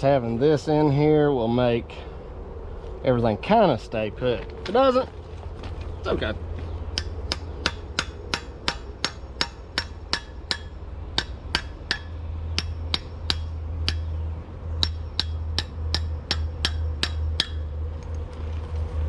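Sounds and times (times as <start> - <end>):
steady low hum: 0.0 - 19.0
hammer striking steel: 6.9 - 14.2, 14.8 - 17.7.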